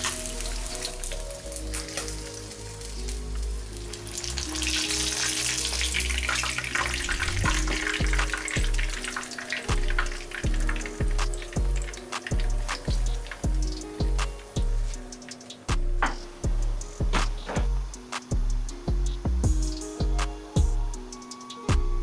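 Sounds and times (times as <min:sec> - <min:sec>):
food deep-frying in oil: 0:00.0 - 0:20.2
background music: 0:00.0 - 0:22.0.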